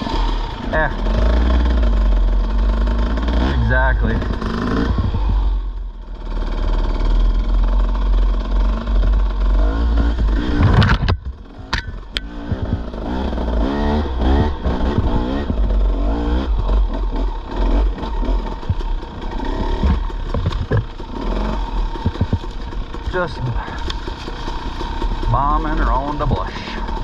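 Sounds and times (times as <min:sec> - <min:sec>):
dirt bike engine revving: 0:00.0 - 0:27.0
bike knocks and rattles: 0:03.4 - 0:05.5, 0:08.7 - 0:13.2, 0:14.2 - 0:27.0.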